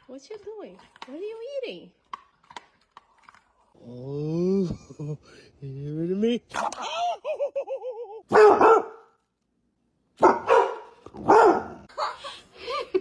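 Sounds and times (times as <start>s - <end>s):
dog barking: 8.3s - 9.2s, 10.2s - 12.2s.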